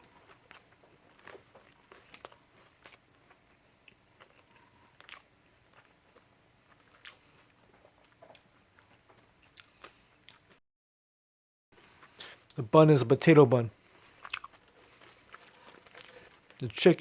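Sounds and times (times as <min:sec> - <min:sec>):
biting and chewing crunchy food: 0:00.0 - 0:10.6, 0:13.9 - 0:16.8.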